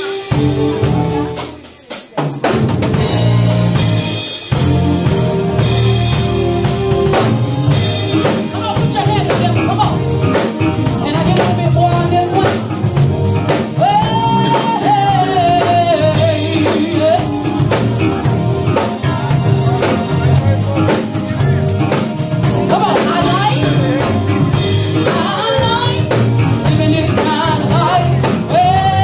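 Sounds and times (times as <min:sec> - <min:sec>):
band with drum kit: 0:00.0 - 0:29.0
woman singing: 0:11.0 - 0:12.7, 0:13.6 - 0:17.6, 0:22.6 - 0:24.1, 0:24.9 - 0:29.0.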